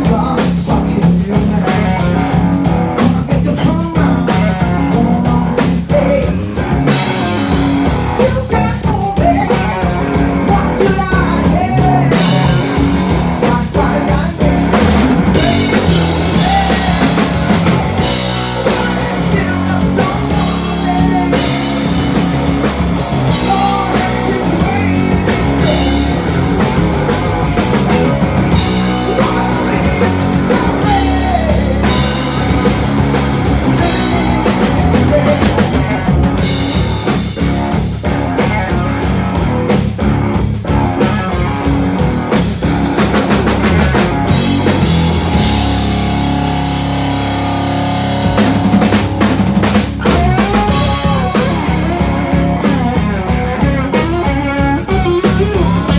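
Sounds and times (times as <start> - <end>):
blues-rock band playing live: 0.0 - 55.9
bending electric guitar lines: 6.4 - 55.9.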